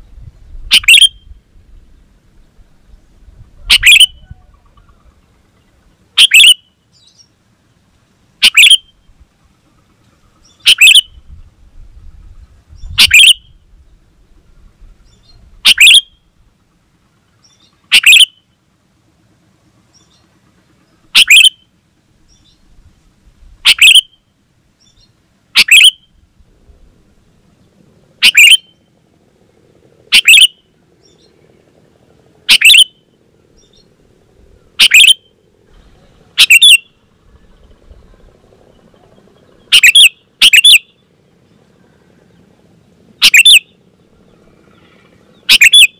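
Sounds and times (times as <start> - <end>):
bulbul call: 0.7 - 1.3, 3.6 - 5.2, 6.2 - 6.7, 8.4 - 9.0, 10.5 - 11.2, 12.9 - 13.6, 15.6 - 16.2, 17.9 - 18.5, 21.1 - 21.7, 23.6 - 24.2, 25.6 - 26.1, 28.2 - 28.8, 30.1 - 31.2, 32.5 - 33.9, 34.8 - 41.0, 43.2 - 43.8, 44.8 - 45.9.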